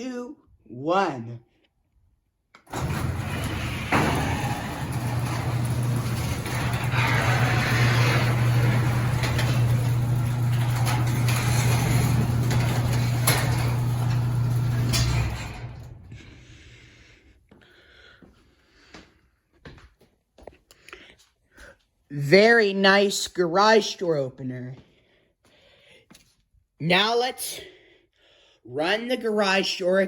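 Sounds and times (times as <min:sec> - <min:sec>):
garage door opener motor hum: 0:02.6 - 0:16.7
chain and moving door: 0:02.7 - 0:16.4.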